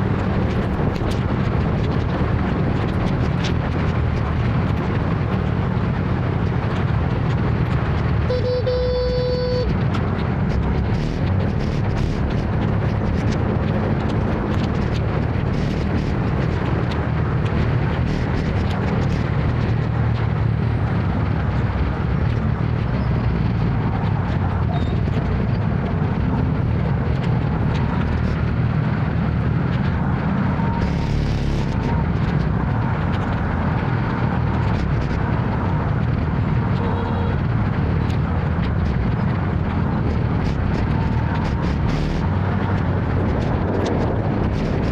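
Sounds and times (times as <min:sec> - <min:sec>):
wind noise on microphone: 0:00.0 - 0:44.9
scooter engine rumble: 0:08.2 - 0:12.5.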